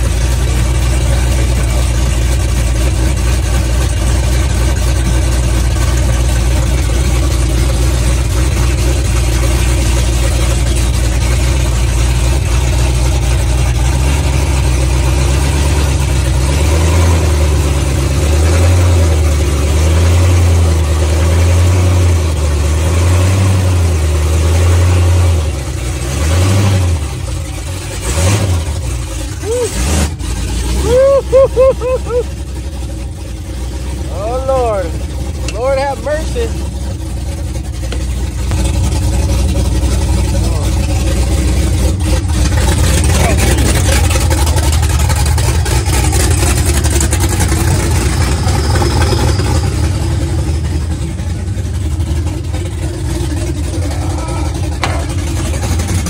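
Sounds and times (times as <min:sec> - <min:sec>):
engine running loud: 0:00.0 - 0:56.0.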